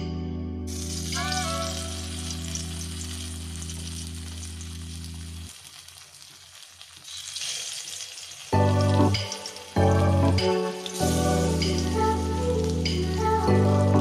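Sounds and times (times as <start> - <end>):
music: 0.0 - 5.3, 8.5 - 14.0
eggplant sizzling in oil: 0.7 - 14.0.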